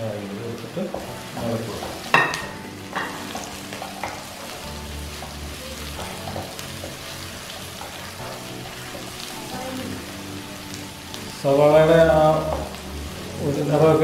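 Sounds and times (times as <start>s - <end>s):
onions sizzling in hot oil: 0.0s - 14.0s.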